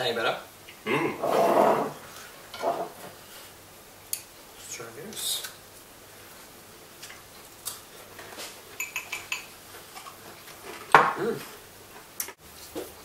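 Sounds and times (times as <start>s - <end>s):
cutlery clinking on plate: 8.8s - 9.5s.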